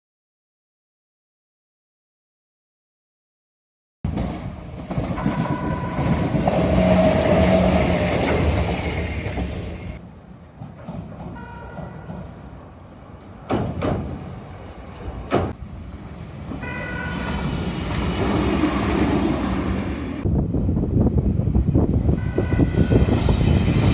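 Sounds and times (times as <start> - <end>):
electric train running past: 4.1 - 20.3, 21.2 - 23.9
train horn two-note blasts: 5.2 - 7.8, 22.2 - 23.2.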